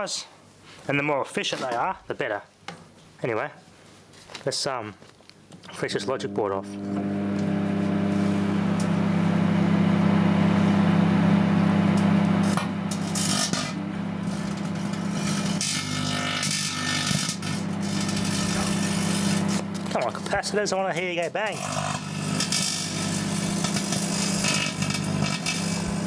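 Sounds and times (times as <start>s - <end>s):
microwave oven mains hum: 5.8s - 20.4s, 21.6s - 26.0s.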